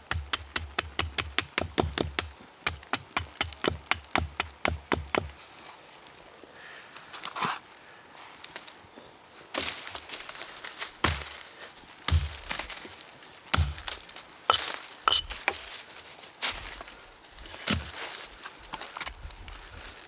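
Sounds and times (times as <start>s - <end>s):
wood chopping knocks: 0.0s - 5.3s, 11.0s - 11.3s, 12.1s - 12.6s, 13.5s - 15.7s
wood cracking and crunching: 12.1s - 15.9s.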